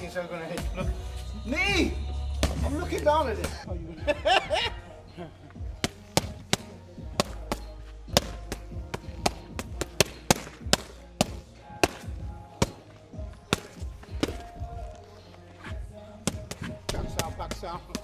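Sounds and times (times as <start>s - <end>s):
background music: 0.0s - 18.0s
strikes slapping kickboxing pads: 5.8s - 12.8s.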